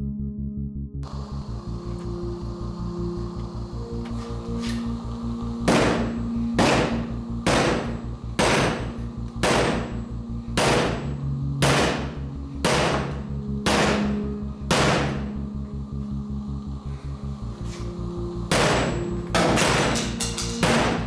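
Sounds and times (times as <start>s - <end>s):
hammer ringing on metal: 5.7s - 15.4s, 18.5s - 21.0s.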